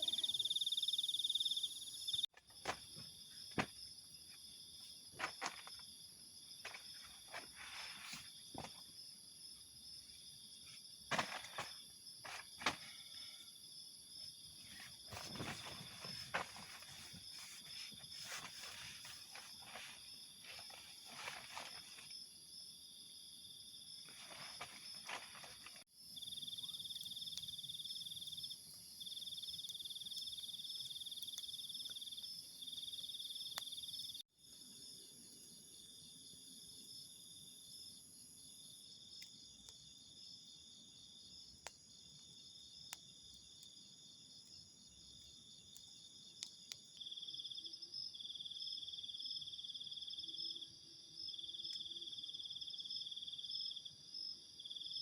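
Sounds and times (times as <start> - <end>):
loud insect trill: 0.0 - 2.3
crickets trilling: 0.0 - 55.0
rustling: 14.6 - 22.2, 24.0 - 25.8.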